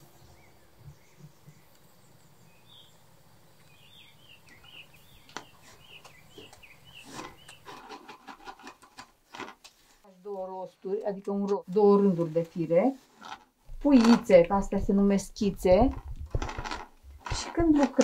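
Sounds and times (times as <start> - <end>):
small birds chirping: 0.0 - 7.8
sharp clicks and knocks: 13.3 - 18.0.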